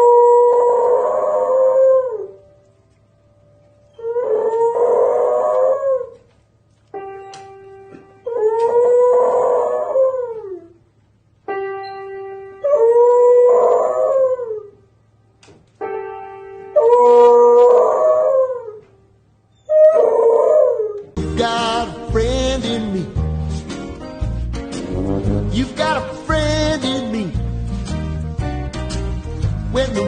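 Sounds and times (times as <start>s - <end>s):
dog howling: 0.0s - 2.4s, 3.9s - 6.3s, 8.2s - 10.8s, 12.6s - 14.8s, 16.8s - 18.9s, 19.6s - 21.2s
held musical notes: 21.2s - 30.0s.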